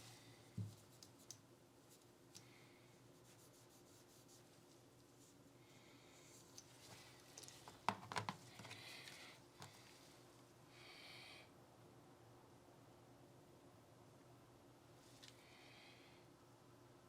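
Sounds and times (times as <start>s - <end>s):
soft rubbing of pistol parts: 0.0s - 10.4s
short brushing rubs: 3.0s - 5.5s.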